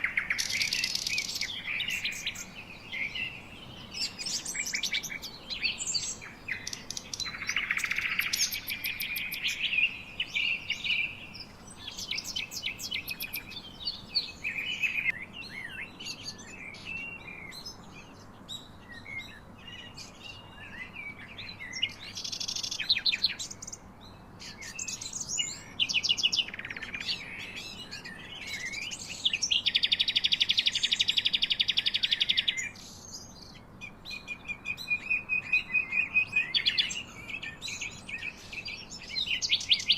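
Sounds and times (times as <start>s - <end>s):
birds chirping and singing: 0.0s - 39.9s
loud fast bird trill: 3.9s - 11.2s.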